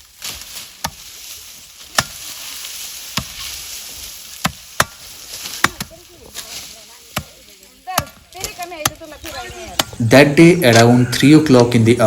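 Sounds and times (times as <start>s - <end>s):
sharp chopping strikes: 1.9s - 2.3s, 3.1s - 3.5s, 4.4s - 5.9s, 7.1s - 8.2s, 9.7s - 10.0s.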